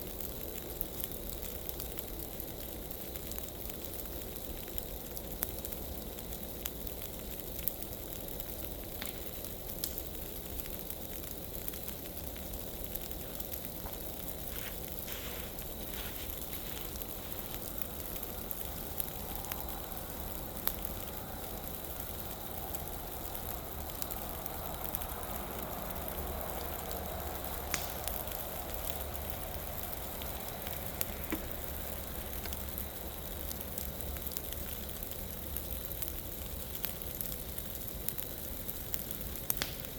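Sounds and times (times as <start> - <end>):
burning leaves crackling: 0.0 - 39.9
sharp pops and snaps: 8.9 - 10.1, 27.6 - 29.0, 30.3 - 34.2, 39.5 - 39.9.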